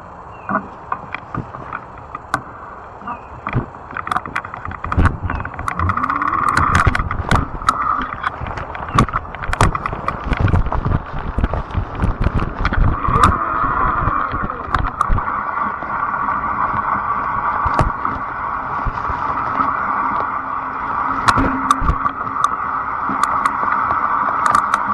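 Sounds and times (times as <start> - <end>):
electric bike motor hum: 0.0 - 24.9
bike clicks and knocks: 3.5 - 13.4, 14.7 - 15.2, 23.2 - 23.6, 24.4 - 24.9
low rumble: 4.7 - 23.6.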